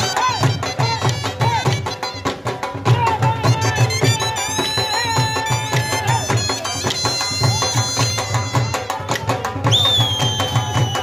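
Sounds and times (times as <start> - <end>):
drum beating steady rhythm: 0.0 - 11.0
high-pitched melody instrument: 3.6 - 9.3.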